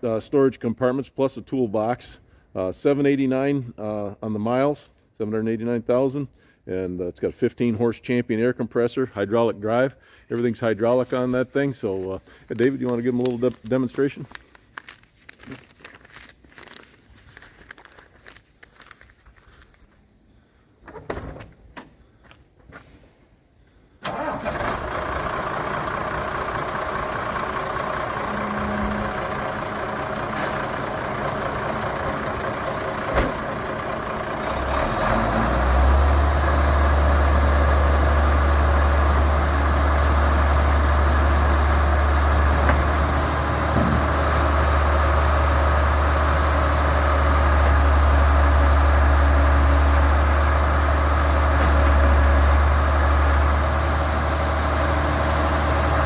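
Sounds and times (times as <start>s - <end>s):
diesel engine running: 24.1s - 56.0s
deep loud drone: 28.1s - 32.5s.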